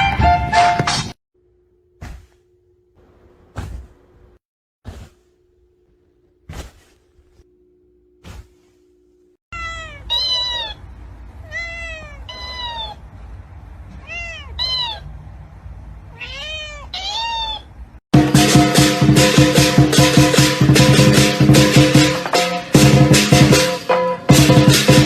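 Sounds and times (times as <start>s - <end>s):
music: 0.0s - 1.1s, 18.2s - 25.0s
faint hum: 5.0s - 16.2s
cat meowing: 9.6s - 10.8s, 11.4s - 13.0s, 13.9s - 15.1s, 16.1s - 17.7s.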